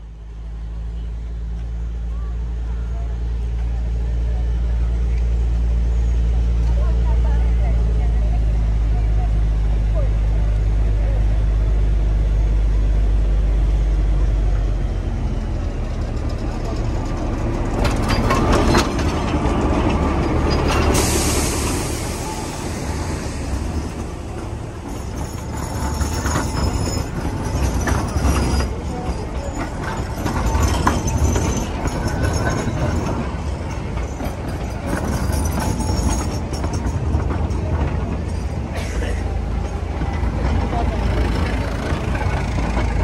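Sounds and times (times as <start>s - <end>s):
diesel locomotive rumbling: 0.0s - 43.0s
wheels knocking over rail joints: 16.0s - 21.0s, 23.8s - 43.0s.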